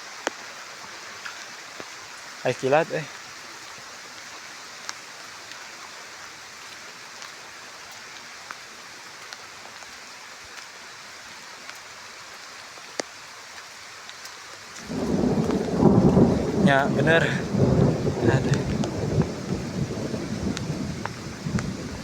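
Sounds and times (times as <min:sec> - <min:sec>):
raindrops ticking close by: 0:00.0 - 0:22.0
steady rain falling: 0:00.0 - 0:22.0
thunder rumble: 0:14.8 - 0:22.0.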